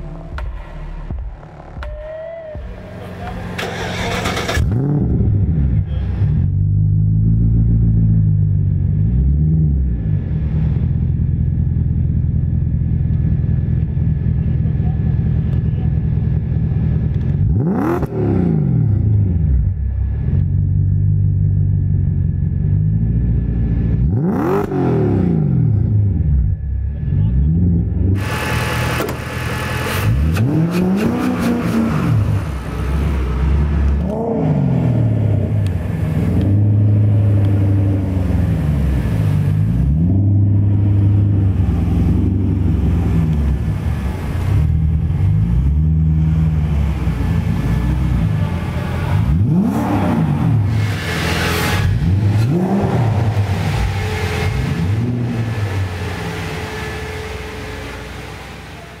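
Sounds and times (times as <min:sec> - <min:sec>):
car engine revving: 0:02.5 - 0:59.0.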